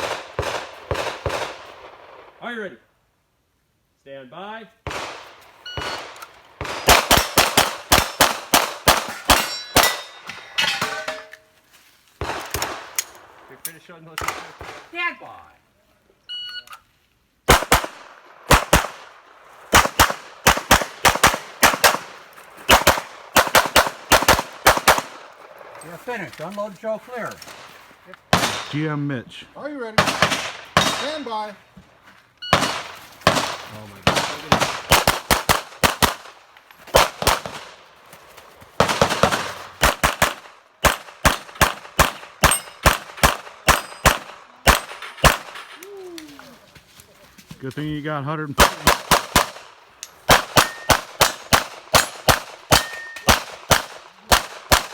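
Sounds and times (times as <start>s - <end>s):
pistol shots in quick pairs: 0.0s - 1.7s, 4.9s - 10.2s, 17.5s - 19.1s, 19.7s - 25.2s, 28.3s - 28.8s, 30.0s - 31.4s, 32.5s - 37.8s, 38.8s - 45.6s, 48.6s - 54.9s.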